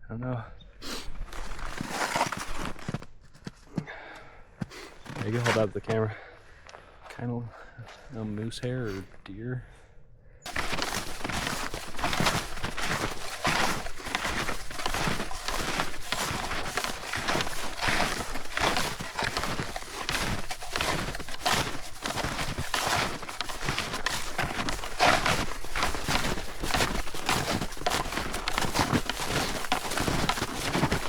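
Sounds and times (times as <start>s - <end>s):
snowshoes crunching in snow: 1.1s - 3.8s, 4.6s - 6.1s, 10.5s - 31.0s.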